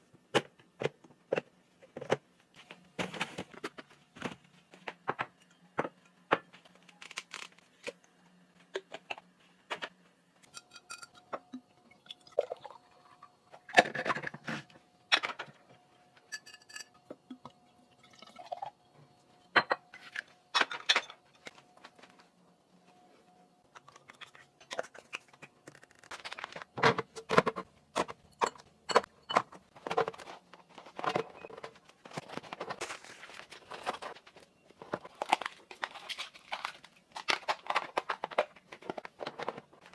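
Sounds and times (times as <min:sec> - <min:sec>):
dishes and containers clattering: 0:08.8 - 0:15.6, 0:16.2 - 0:18.7, 0:19.4 - 0:21.5, 0:26.8 - 0:32.8.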